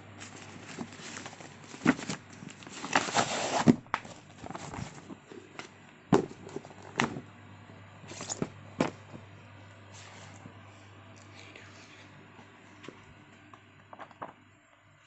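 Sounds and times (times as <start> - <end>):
rustling: 0.2 - 5.6.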